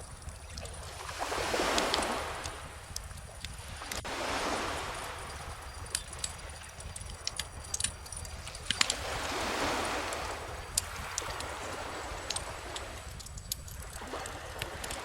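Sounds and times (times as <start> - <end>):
calm ocean waves: 0.0 - 15.0
bonfire crackling and popping: 4.9 - 9.0, 10.0 - 15.0.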